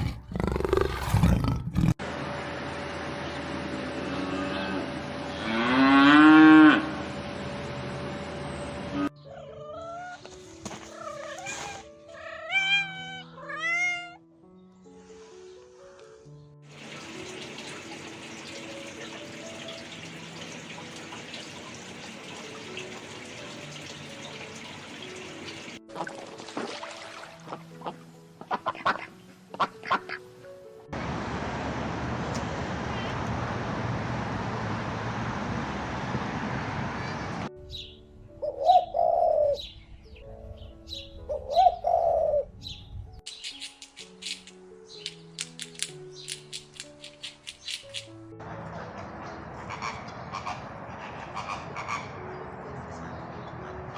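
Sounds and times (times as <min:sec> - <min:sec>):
gentle background music: 0:04.2 - 0:31.1, 0:37.5 - 0:53.9
rushing water: 0:16.7 - 0:28.0
bird cooing: 0:38.4 - 0:39.7, 0:41.3 - 0:42.5
high bird chirps: 0:42.7 - 0:45.4.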